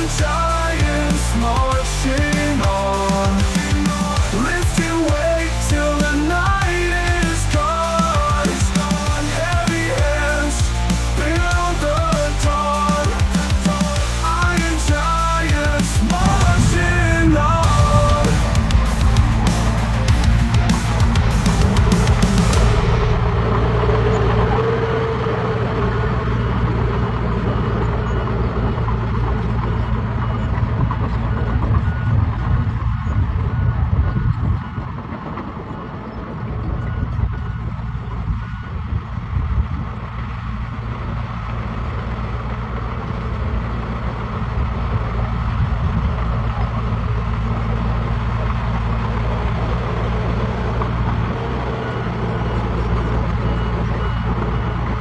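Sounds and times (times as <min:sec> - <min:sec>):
reversing alarm beeping: 0:00.0 - 0:25.0, 0:27.3 - 0:40.2, 0:49.3 - 0:55.0
diesel machinery engine drone: 0:00.0 - 0:55.0.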